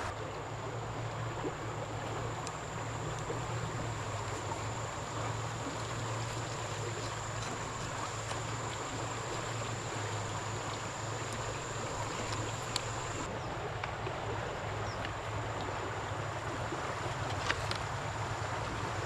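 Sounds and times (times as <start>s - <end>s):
water flowing: 0.0s - 19.0s
faint clicks: 2.4s - 3.3s, 12.1s - 14.0s.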